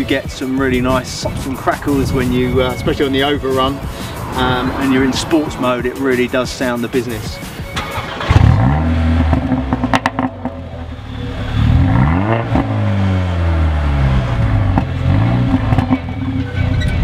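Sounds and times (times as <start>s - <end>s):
car engine revving: 0.7s - 17.0s
exhaust pops and crackles: 7.8s - 11.0s, 14.2s - 17.0s.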